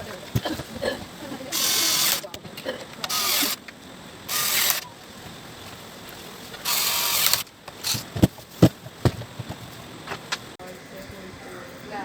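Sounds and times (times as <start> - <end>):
ratchet clicking: 1.5 - 2.4, 3.0 - 4.9, 6.6 - 8.1.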